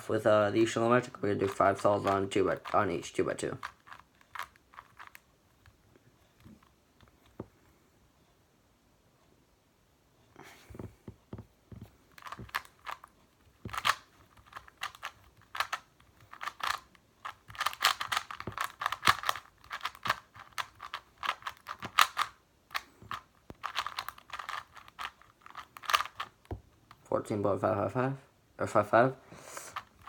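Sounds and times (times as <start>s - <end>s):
speed cube clicking turns: 1.4s - 5.7s, 12.1s - 27.0s, 29.6s - 30.0s.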